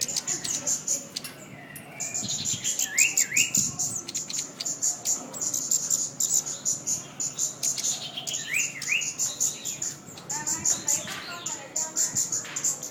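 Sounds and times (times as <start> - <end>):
bird chirping: 0.0 - 12.9
rising whistled bird notes: 1.6 - 3.7.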